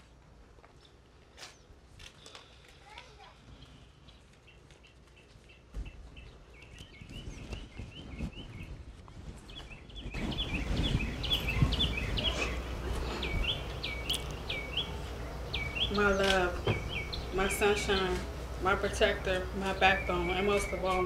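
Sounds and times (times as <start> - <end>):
bird chirping: 3.6 - 21.0.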